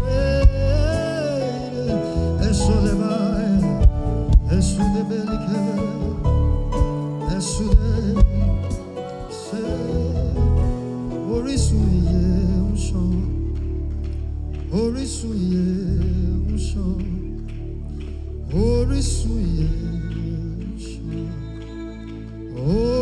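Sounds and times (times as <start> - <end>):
solo voice singing: 0.0 - 13.8
gospel worship music: 0.0 - 23.0.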